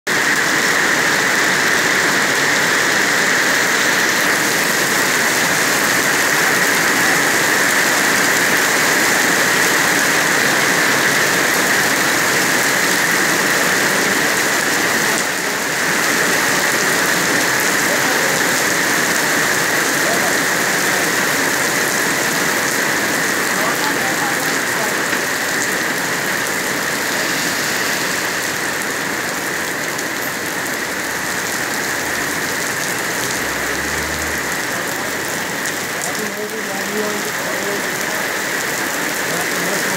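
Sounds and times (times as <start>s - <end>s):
heavy rain on pavement: 0.0s - 39.9s.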